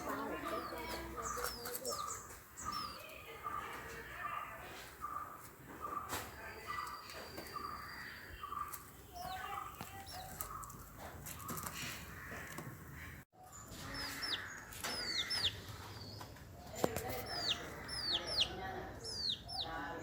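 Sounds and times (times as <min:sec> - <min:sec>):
chickens clucking: 0:00.0 - 0:19.8
chicks peeping: 0:00.0 - 0:20.0.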